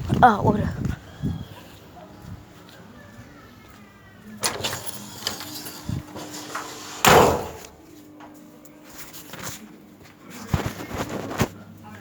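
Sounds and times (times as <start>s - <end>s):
door banging: 4.4s - 7.8s.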